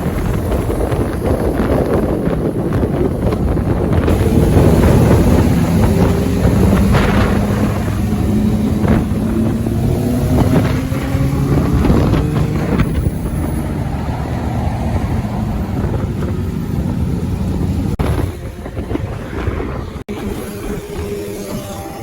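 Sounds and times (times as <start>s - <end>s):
wind and road noise: 0.0s - 22.0s
motorcycle engine running: 3.9s - 13.6s.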